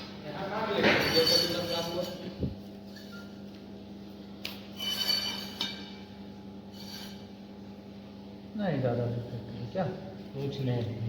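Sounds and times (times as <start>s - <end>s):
steady low hum: 0.0s - 11.0s
metal scraping: 6.7s - 7.3s.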